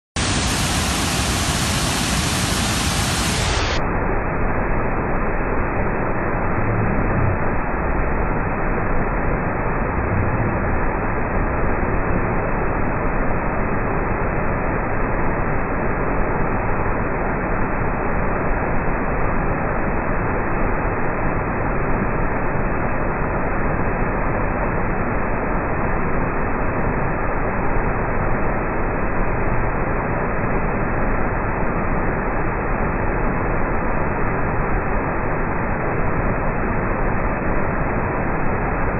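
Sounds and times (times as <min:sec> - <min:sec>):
waterfall rushing: 0:00.2 - 0:03.8.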